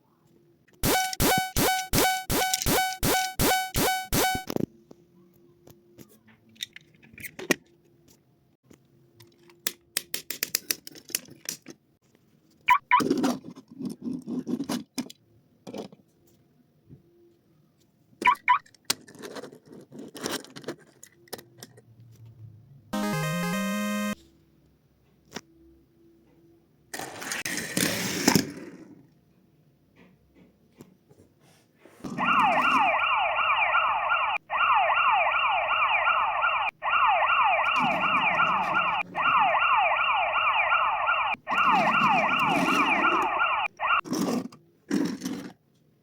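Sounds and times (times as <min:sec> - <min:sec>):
pulsing electronic tone: 0:00.8 - 0:04.5, 0:23.0 - 0:24.2, 0:32.2 - 0:43.7
short electronic chirps: 0:00.8 - 0:04.5
steady electronic tone: 0:00.8 - 0:04.5, 0:23.0 - 0:24.2.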